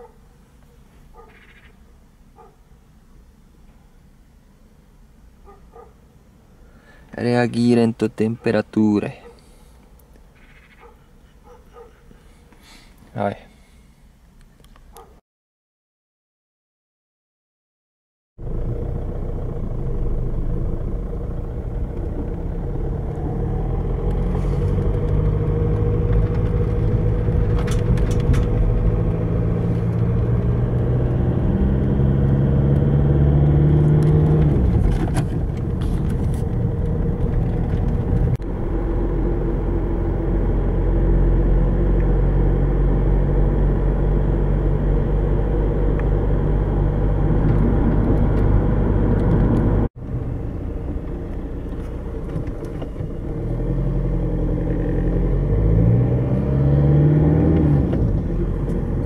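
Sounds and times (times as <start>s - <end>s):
road noise: 0.0s - 15.2s, 18.4s - 59.0s
car engine running inside cabin: 18.4s - 59.0s.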